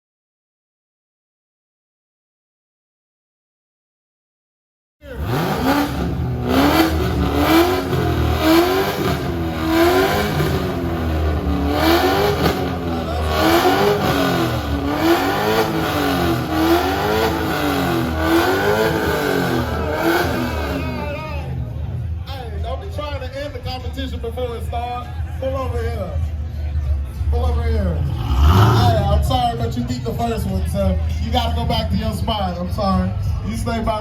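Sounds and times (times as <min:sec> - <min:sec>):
car engine revving: 0:05.0 - 0:22.2, 0:27.5 - 0:30.0.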